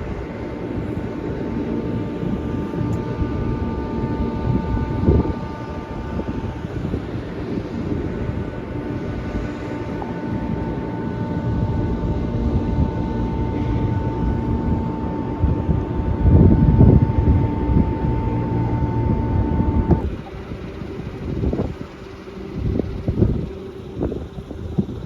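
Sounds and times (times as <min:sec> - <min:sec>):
high whine: 0:00.0 - 0:25.0
vehicle engine humming: 0:00.4 - 0:07.4, 0:17.4 - 0:25.0.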